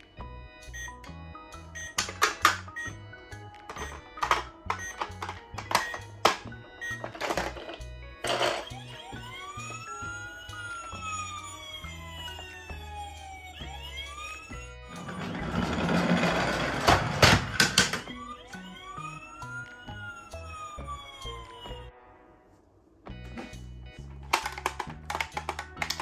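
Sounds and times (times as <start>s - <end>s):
background music: 0.0s - 26.0s
siren wailing: 8.6s - 16.3s, 17.8s - 21.9s.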